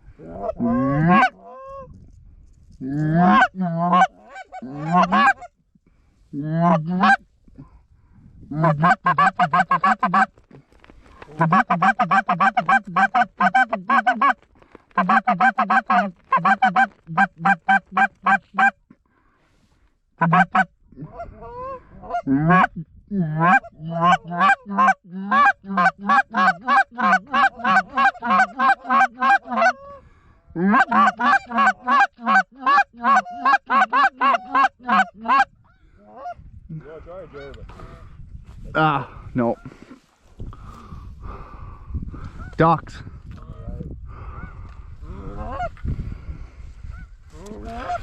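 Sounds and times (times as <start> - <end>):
geese honking: 0.5 - 1.8, 3.2 - 5.5, 8.6 - 10.3, 11.4 - 14.4, 15.0 - 18.8, 20.2 - 20.7, 23.4 - 29.8, 30.6 - 35.5.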